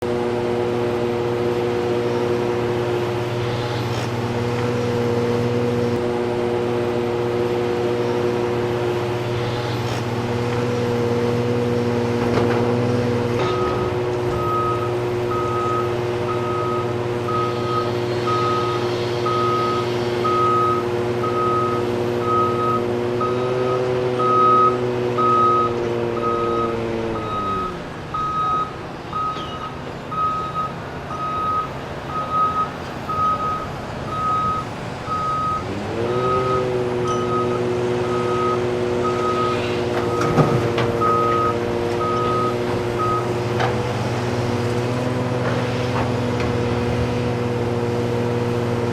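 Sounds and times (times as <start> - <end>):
diesel engine revving: 0.0 - 48.9
backup alarm beeping: 13.4 - 40.4, 41.0 - 43.4.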